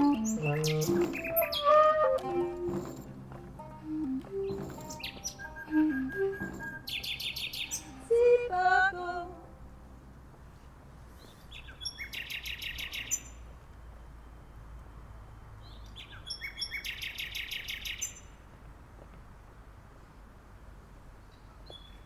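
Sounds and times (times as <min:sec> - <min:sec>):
nightingale singing: 0:00.0 - 0:08.4, 0:11.6 - 0:13.4, 0:15.7 - 0:18.3.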